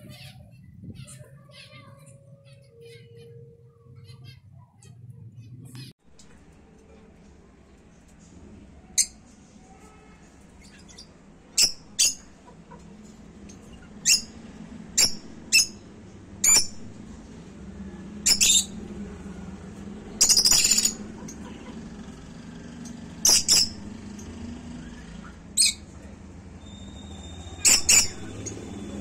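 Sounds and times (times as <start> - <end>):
finch chattering call: 20.2 - 21.8, 26.6 - 29.0
finches chirping: 20.2 - 29.0.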